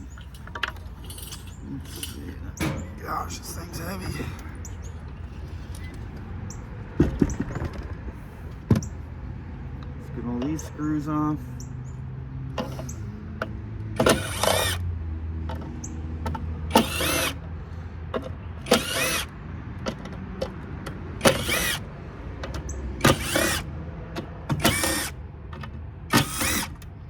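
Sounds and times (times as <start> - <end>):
power drill motor whine: 14.0 - 14.8, 16.7 - 17.4, 18.6 - 19.3, 21.2 - 21.8, 23.0 - 23.7, 24.6 - 25.2, 26.1 - 26.8.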